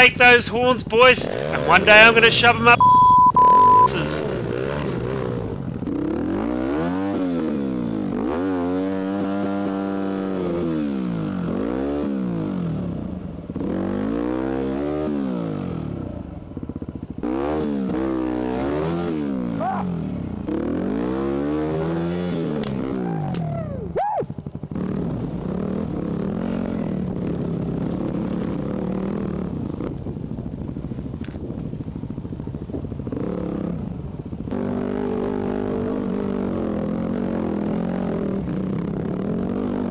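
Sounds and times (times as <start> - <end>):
dirt bike engine revving: 0.0 - 12.7, 13.5 - 15.7, 17.1 - 29.9, 34.5 - 39.9.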